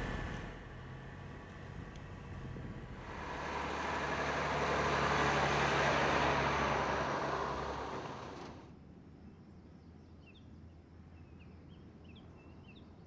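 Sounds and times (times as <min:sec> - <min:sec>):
truck diesel engine running: 0:03.0 - 0:08.7.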